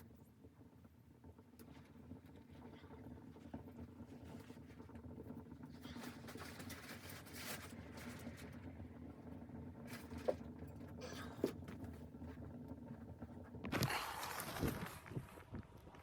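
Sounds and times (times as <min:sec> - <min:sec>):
rustling and handling noise: 0:13.7 - 0:16.0.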